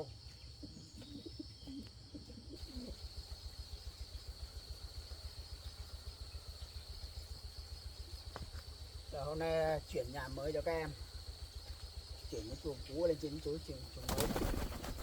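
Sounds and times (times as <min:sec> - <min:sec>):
pigeons cooing: 0:00.0 - 0:03.3
insects trilling: 0:00.0 - 0:15.0.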